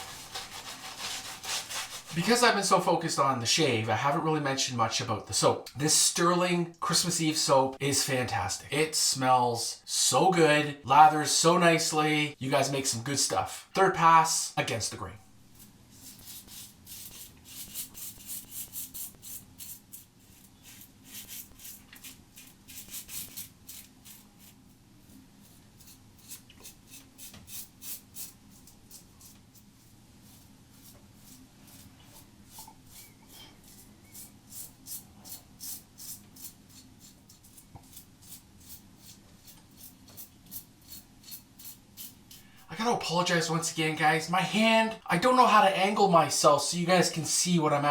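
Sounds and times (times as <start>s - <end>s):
razor scraping stubble: 15.6s - 42.6s.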